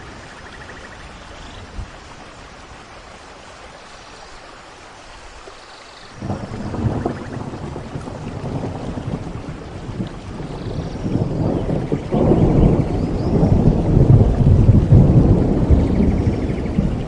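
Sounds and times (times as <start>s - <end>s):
steady rain: 0.0s - 17.0s
low rumble of thunder: 6.2s - 17.0s.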